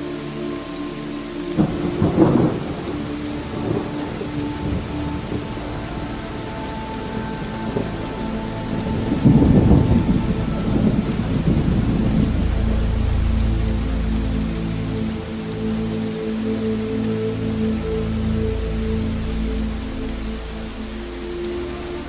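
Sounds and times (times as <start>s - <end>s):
steady rain falling: 0.0s - 22.0s
rolling thunder rumble: 1.6s - 14.2s.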